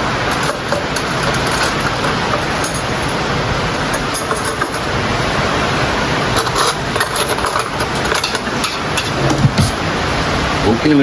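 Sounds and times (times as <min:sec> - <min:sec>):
steady rushing background: 0:00.0 - 0:11.0
utensil clinking against cookware: 0:00.2 - 0:03.2, 0:03.9 - 0:05.0, 0:06.3 - 0:09.8.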